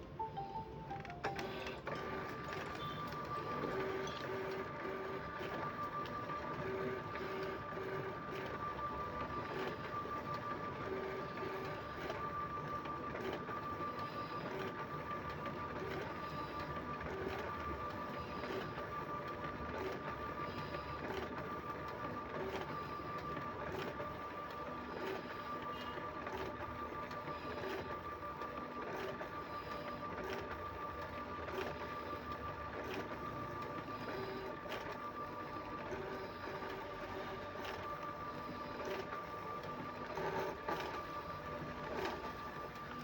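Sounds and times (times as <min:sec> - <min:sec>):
photocopier running with whine: 0:00.0 - 0:43.0
photocopier clicking: 0:00.9 - 0:12.2.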